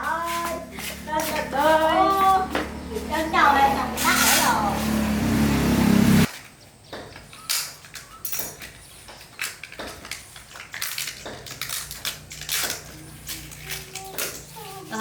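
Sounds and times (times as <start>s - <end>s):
loud low hum: 2.4s - 6.3s.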